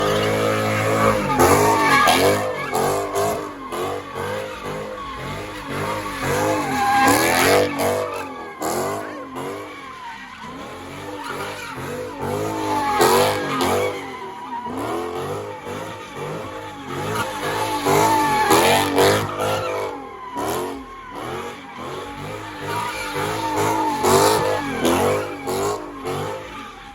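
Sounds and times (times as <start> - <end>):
tyres squealing: 0.0 - 20.1
car engines revving: 0.0 - 26.9.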